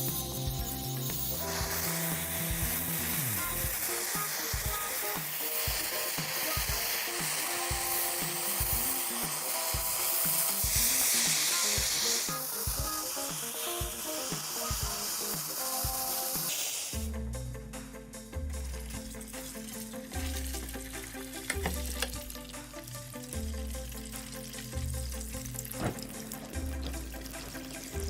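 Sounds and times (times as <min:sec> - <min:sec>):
hissing scraping noise: 0:00.0 - 0:17.0
music with bass beat: 0:00.0 - 0:28.0.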